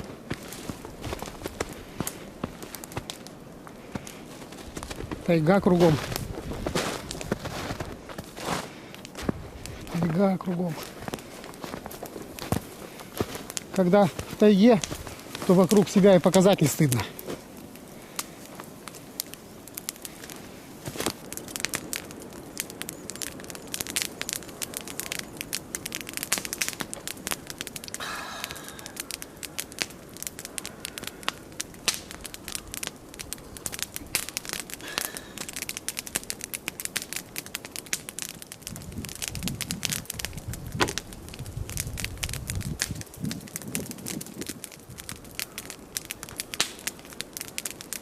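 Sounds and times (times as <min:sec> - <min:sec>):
campfire crackling and popping: 0:00.0 - 0:48.0.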